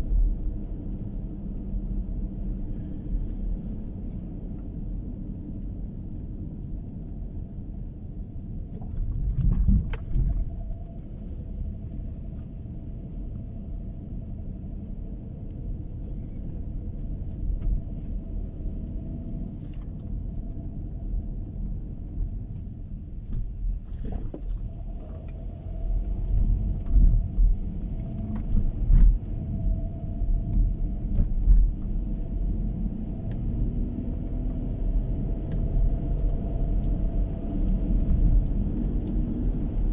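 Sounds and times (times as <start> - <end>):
car rumbling on the move: 0.0 - 39.9.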